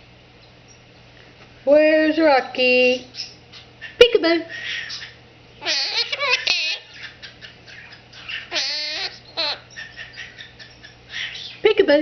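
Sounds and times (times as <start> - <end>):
parrot chattering: 3.0 - 11.7.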